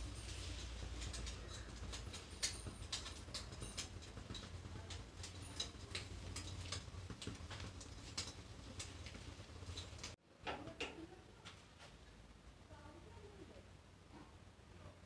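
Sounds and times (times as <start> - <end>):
bread frying in oil: 0.0 - 11.0.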